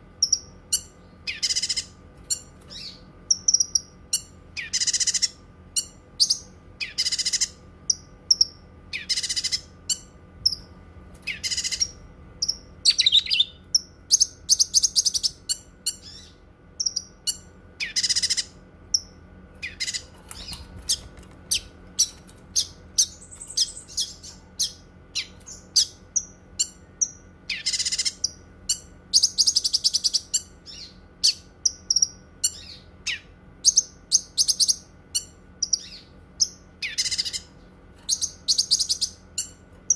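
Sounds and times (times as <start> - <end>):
bird singing high chirps and trills: 0.0 - 39.9.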